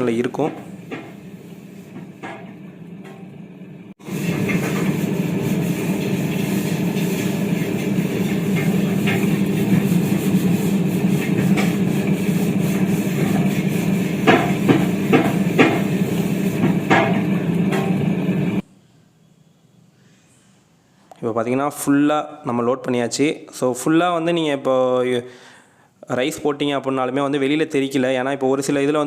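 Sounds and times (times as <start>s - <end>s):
wet grinder humming: 4.0s - 18.6s
sharp knocks: 14.2s - 16.0s, 16.6s - 18.0s.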